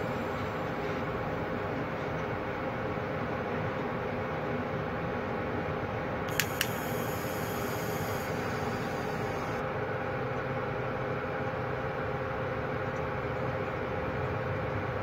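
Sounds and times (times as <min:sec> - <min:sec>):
sharp clicks: 0:06.3 - 0:09.6.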